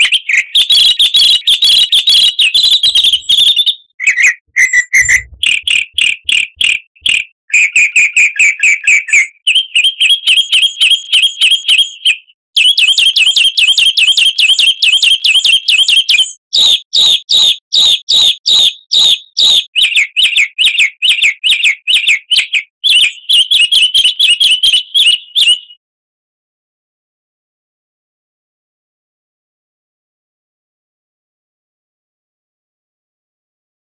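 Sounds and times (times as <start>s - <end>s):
songbird trilling: 0.0s - 7.2s.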